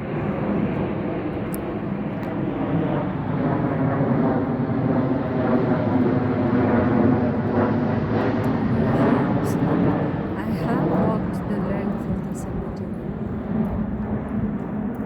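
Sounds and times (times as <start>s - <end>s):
engine drone: 4.4s - 13.5s.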